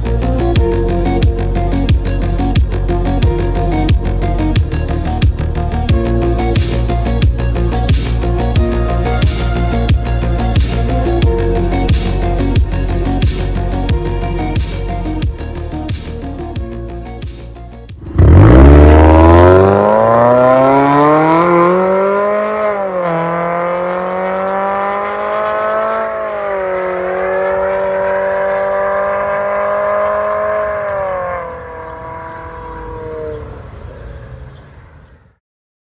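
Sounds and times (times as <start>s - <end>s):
car exhaust note: 18.0s - 21.9s.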